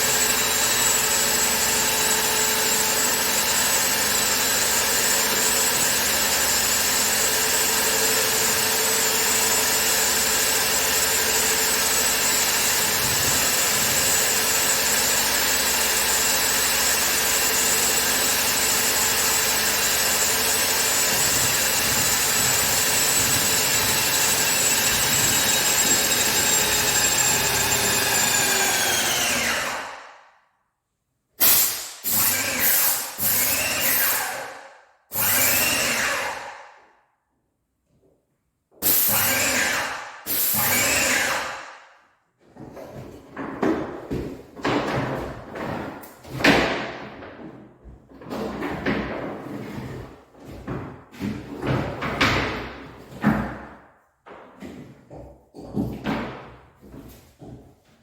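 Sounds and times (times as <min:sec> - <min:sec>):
power tool motor running: 0:00.0 - 0:30.0, 0:38.9 - 0:41.6.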